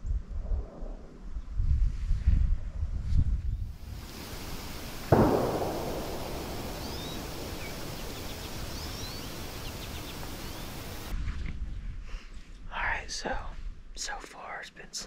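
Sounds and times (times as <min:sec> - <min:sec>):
rifle shot echoing: 0:03.8 - 0:11.1
short bird chirps: 0:04.1 - 0:11.1.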